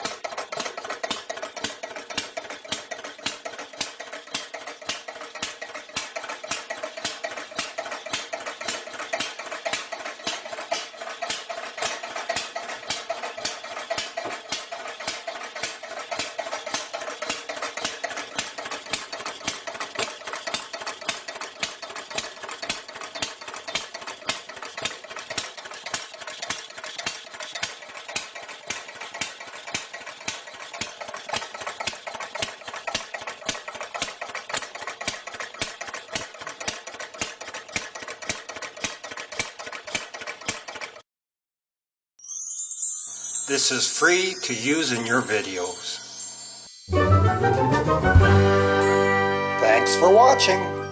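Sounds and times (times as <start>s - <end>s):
steam engine beats: 43.0s - 50.9s.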